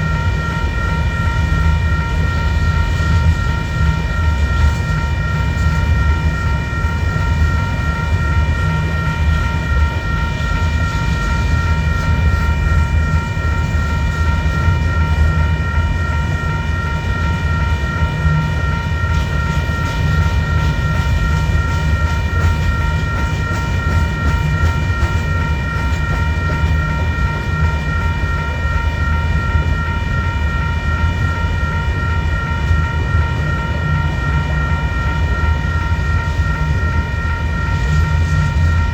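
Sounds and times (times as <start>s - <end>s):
steady high-pitched tones: 0.0s - 38.9s
freight train rumbling past: 17.2s - 29.7s.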